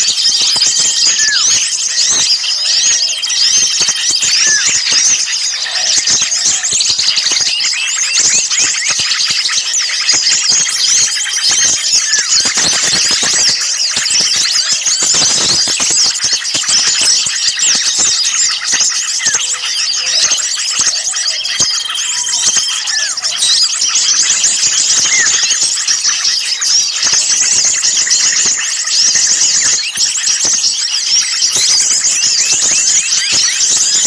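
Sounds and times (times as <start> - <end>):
bird whistles: 0.0 - 34.0
songbirds chattering and chirping: 0.0 - 34.0.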